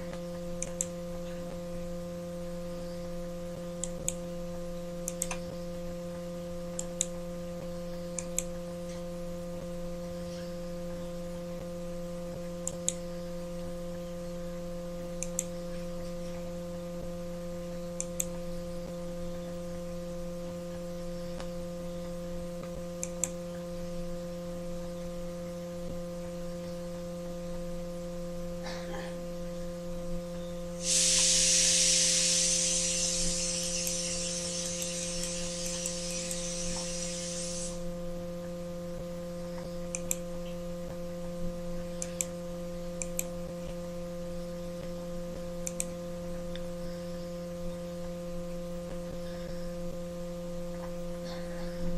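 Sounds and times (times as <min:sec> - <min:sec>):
electrical mains hum: 0:00.0 - 0:51.9
loud high hiss: 0:30.8 - 0:37.9
faint clicks: 0:45.6 - 0:45.9.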